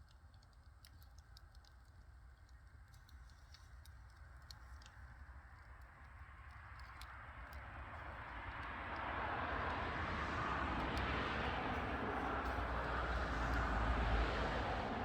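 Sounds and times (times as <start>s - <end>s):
firewood crackling: 0.0s - 15.0s
vehicle passing: 8.4s - 15.0s.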